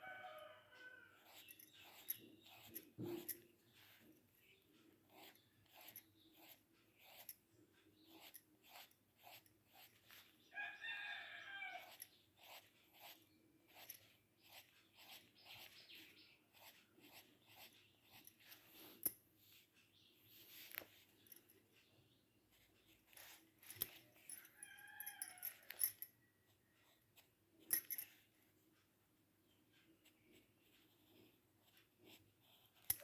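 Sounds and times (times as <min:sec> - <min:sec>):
pencil scratching on paper: 0:00.9 - 0:21.2, 0:22.5 - 0:25.0, 0:29.6 - 0:33.0.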